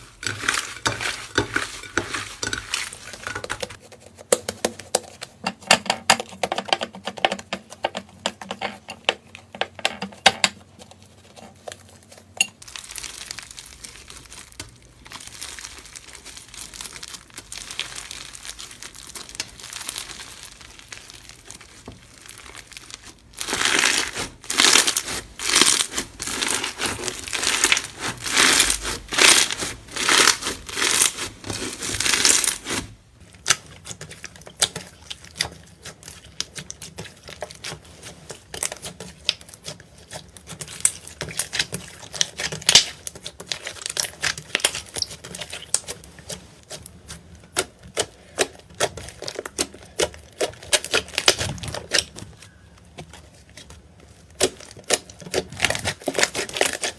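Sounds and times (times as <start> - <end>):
slime squeezed crackling: 12.6 - 56.9.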